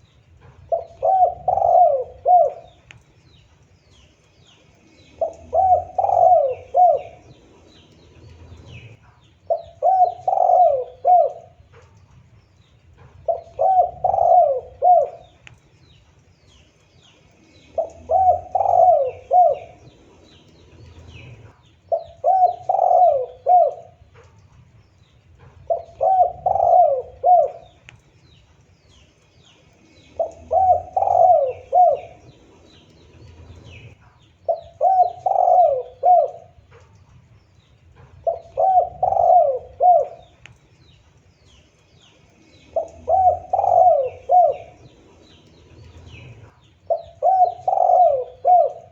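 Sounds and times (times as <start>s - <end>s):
dove cooing: 0.0s - 3.0s, 4.9s - 15.6s, 17.4s - 48.9s.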